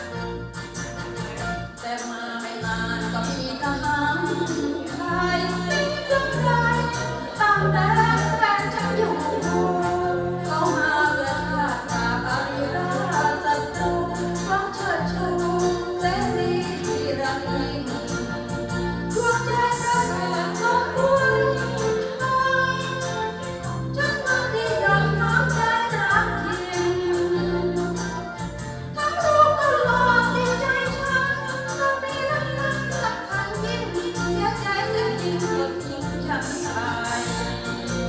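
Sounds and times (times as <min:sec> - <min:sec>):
instrumental backing with beat: 0:00.0 - 0:38.0
woman singing: 0:01.7 - 0:38.0.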